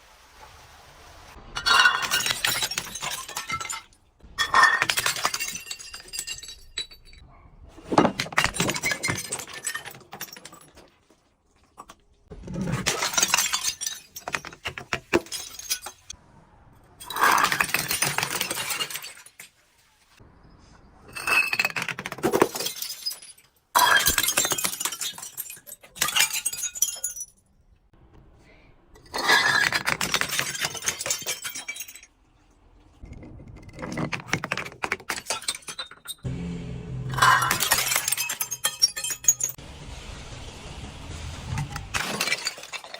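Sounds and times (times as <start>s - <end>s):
glass bottles breaking: 1.6s - 7.2s, 7.9s - 11.0s, 12.6s - 16.2s, 17.0s - 19.6s, 21.1s - 27.4s, 29.0s - 32.2s, 33.8s - 36.3s, 37.1s - 39.6s, 41.6s - 42.9s.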